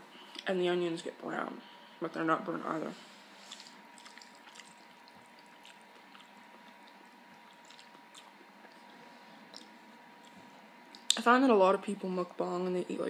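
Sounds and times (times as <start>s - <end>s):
person chewing noodles: 3.4s - 11.1s.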